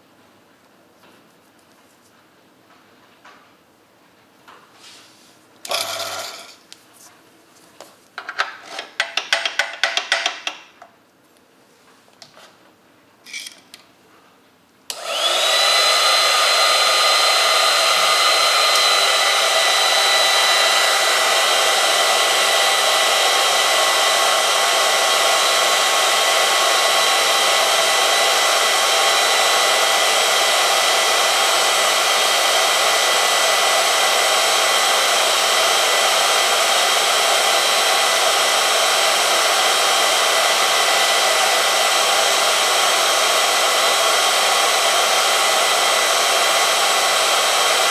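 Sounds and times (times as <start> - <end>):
electric motor whining: 14.9 - 45.8.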